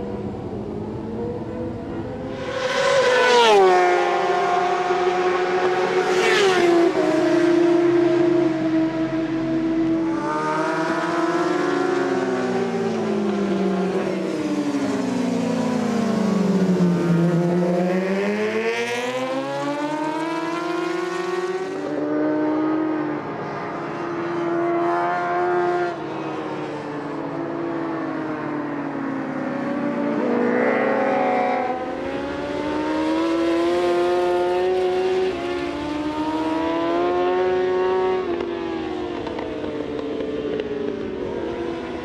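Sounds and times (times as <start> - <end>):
motorcycle engine at high revs: 29.9 - 42.0.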